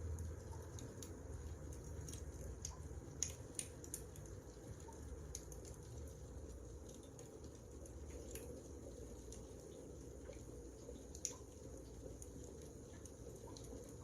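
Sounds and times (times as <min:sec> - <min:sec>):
wood fire crackling and popping: 0:01.8 - 0:08.6.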